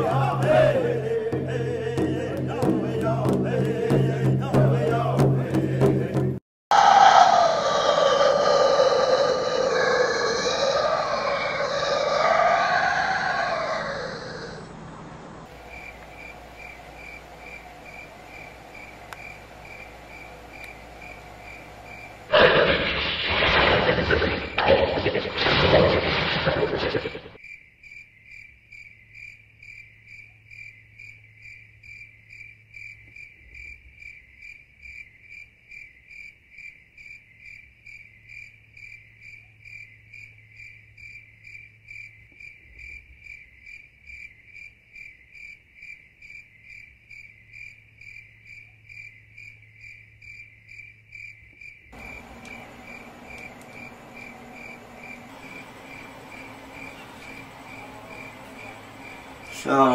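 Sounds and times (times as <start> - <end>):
cricket-like chirping: 15.5 - 59.9
loud noisy burst: 22.3 - 27.4, 52.0 - 59.9
faint low hum: 52.0 - 59.9.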